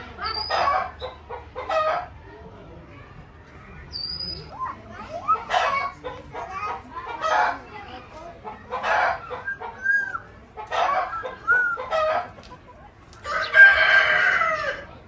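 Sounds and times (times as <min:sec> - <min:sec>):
chickens clucking and squawking: 0:00.0 - 0:15.0
rooster crowing: 0:13.2 - 0:14.9.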